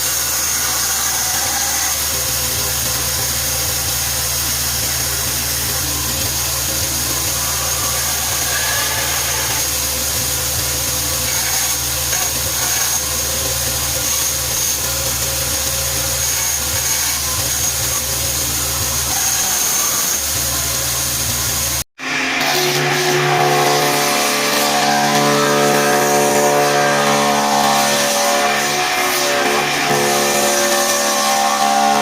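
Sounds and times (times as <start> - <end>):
motor humming: 0.0 - 21.8.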